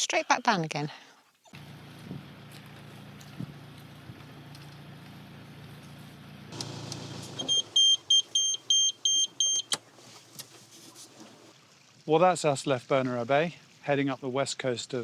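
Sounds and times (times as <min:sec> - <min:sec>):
low steady hum: 0:06.5 - 0:11.5.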